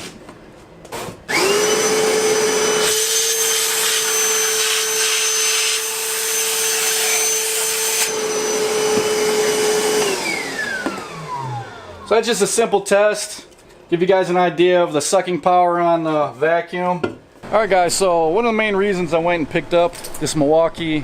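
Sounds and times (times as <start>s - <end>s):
wet dry vacuum whining: 1.2s - 12.6s, 17.4s - 21.0s.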